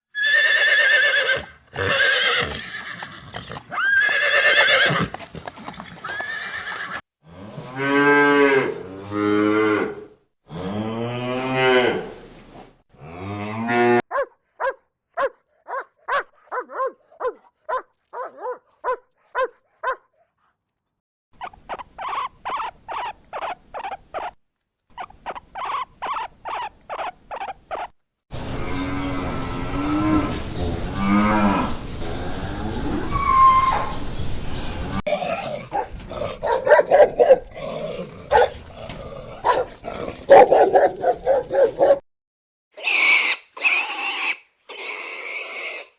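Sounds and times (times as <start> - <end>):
cattle mooing: 35.1 - 42.0
farm animal calls: 35.1 - 42.0.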